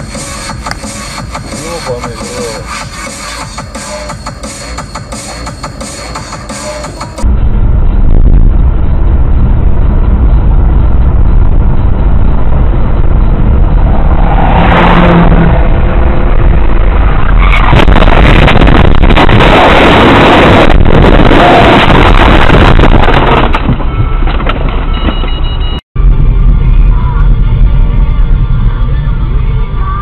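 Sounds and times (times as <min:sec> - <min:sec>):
vehicle road rumble: 0:06.4 - 0:30.0.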